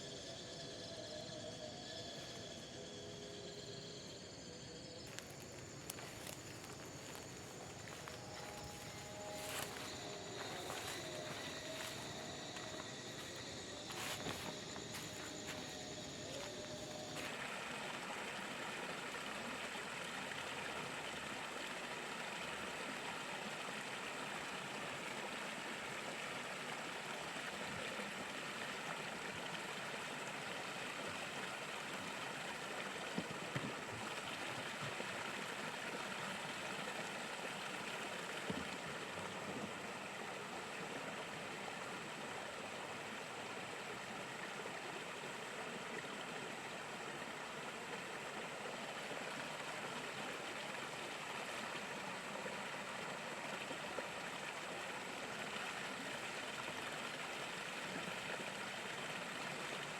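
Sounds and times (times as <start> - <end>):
thin high steady tone: 0.0 - 18.5
running water rushing: 5.1 - 59.9.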